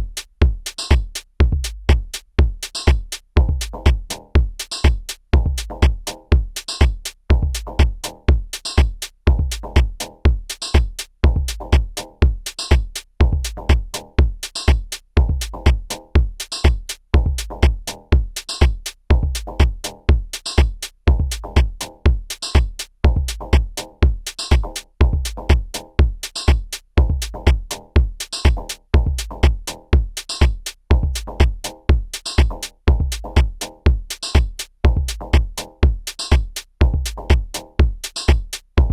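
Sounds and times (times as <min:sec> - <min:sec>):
electronic drum pattern: 0:00.0 - 0:38.9.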